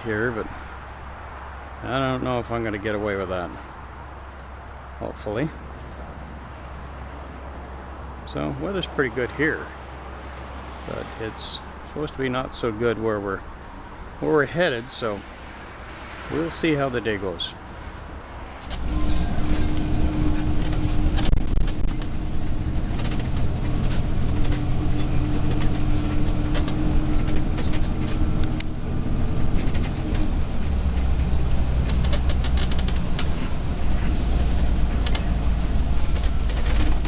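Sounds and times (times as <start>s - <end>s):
engine and road drone: 0.0s - 37.0s
held hum: 18.6s - 37.0s
rattles and knocks: 18.6s - 37.0s.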